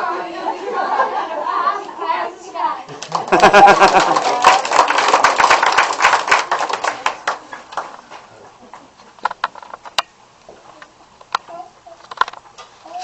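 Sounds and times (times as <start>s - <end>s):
audience clapping: 2.9s - 8.2s.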